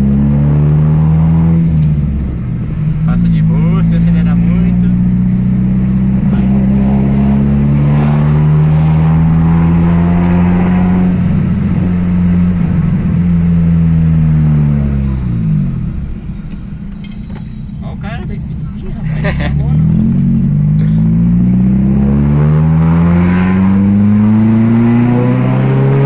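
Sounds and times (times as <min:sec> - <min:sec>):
car engine through loud exhaust: 0:00.0 - 0:26.0.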